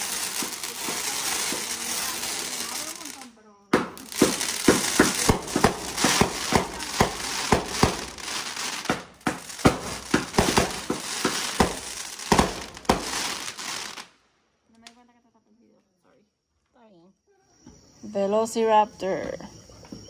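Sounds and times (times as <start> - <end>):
fireworks sharp reports: 0.0 - 14.1
fireworks crackling: 0.0 - 14.9.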